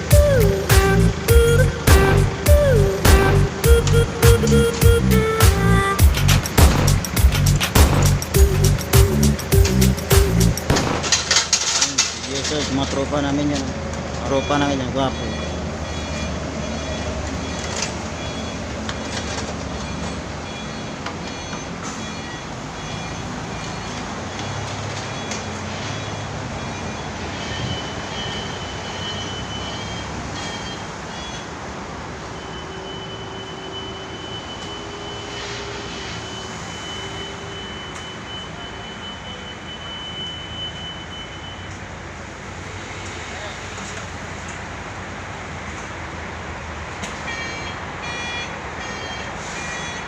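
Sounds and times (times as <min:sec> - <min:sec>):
truck engine running: 0:00.0 - 0:14.1
street traffic: 0:00.0 - 0:50.0.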